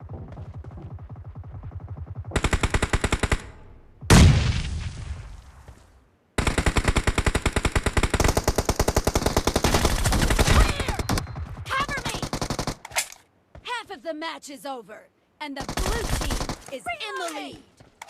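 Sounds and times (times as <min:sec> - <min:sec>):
video game automatic gunfire: 0:00.3 - 0:03.5, 0:06.4 - 0:12.8, 0:15.6 - 0:16.7.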